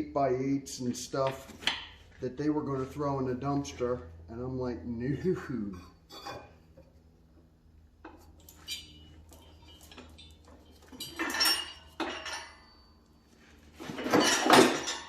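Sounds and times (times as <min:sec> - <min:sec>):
light metal clinks: 0:08.1 - 0:13.3.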